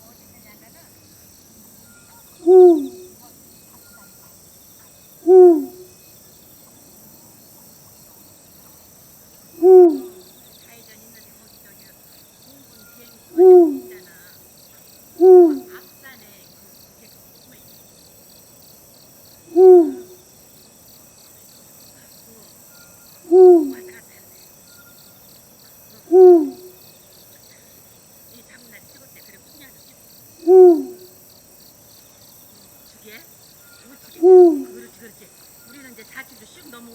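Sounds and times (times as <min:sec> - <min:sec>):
crickets chirping: 0:00.0 - 0:36.9
owl hooting: 0:02.1 - 0:03.2, 0:05.2 - 0:05.9, 0:09.6 - 0:10.3, 0:12.8 - 0:14.1, 0:15.2 - 0:15.8, 0:19.5 - 0:20.2, 0:23.2 - 0:24.0, 0:26.0 - 0:26.8, 0:30.4 - 0:31.2, 0:33.6 - 0:35.0.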